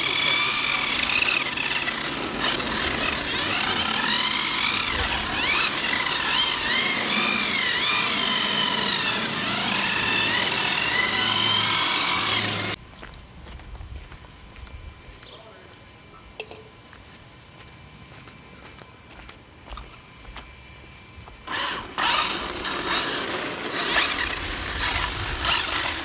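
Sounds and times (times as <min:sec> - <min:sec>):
rc car motors whining: 0:00.0 - 0:12.8, 0:21.5 - 0:26.0.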